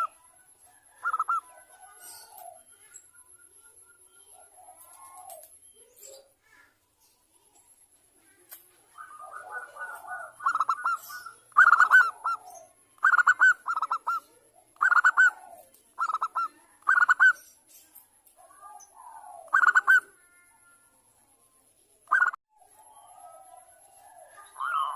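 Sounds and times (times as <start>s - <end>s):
dove cooing: 0.0s - 2.9s, 4.2s - 5.6s, 8.3s - 17.4s, 18.4s - 20.4s, 22.1s - 24.9s.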